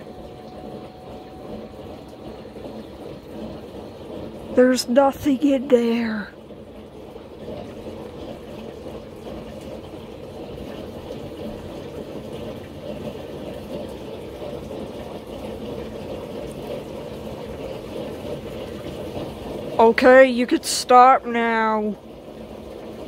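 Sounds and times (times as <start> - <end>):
water rushing in washing machine: 0.0 - 23.0.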